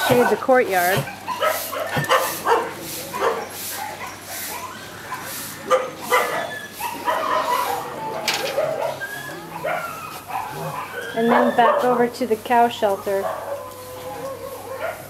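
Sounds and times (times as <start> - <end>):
dogs barking and yipping: 0.0 - 15.0
dogs whimpering: 0.0 - 15.0.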